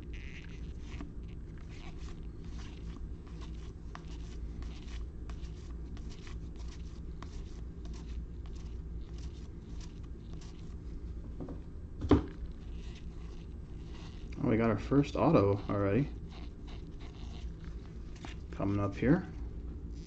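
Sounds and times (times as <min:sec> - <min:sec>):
cards rustling and clicking: 0:00.4 - 0:10.8.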